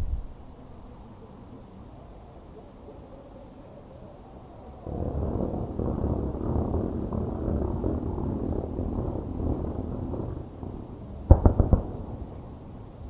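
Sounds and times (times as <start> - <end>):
distant fireworks rumble and crackle: 4.6 - 13.0
sharp firework bangs: 5.8 - 13.0.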